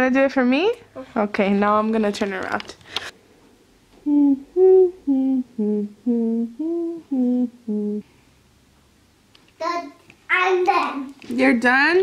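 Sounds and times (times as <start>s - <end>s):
person humming a tune: 4.0s - 8.1s.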